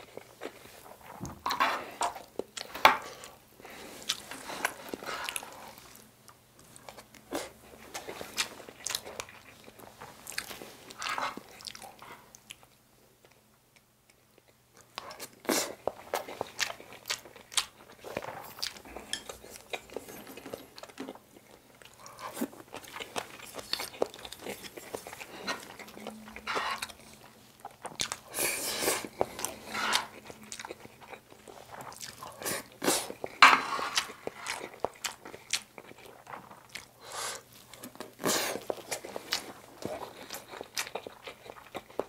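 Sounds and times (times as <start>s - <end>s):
wet chewing: 14.4s - 42.0s
spoon scraping a griddle pan: 26.4s - 26.9s, 29.6s - 30.2s, 33.4s - 34.5s.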